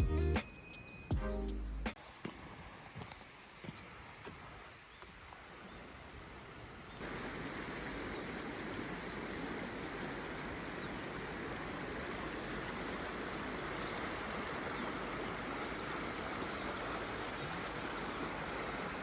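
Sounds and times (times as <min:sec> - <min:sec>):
river water rushing: 0:05.4 - 0:19.0.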